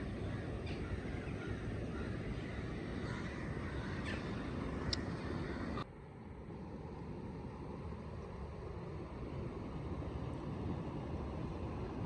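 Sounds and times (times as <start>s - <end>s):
low outdoor rumble: 0.0s - 12.0s
crow cawing: 0.2s - 5.8s.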